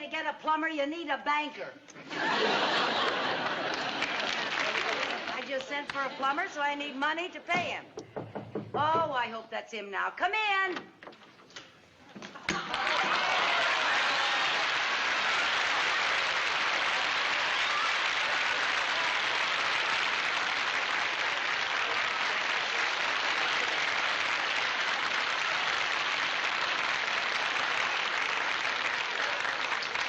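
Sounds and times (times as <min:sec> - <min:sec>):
audience applauding: 0:02.2 - 0:06.2, 0:12.4 - 0:30.0.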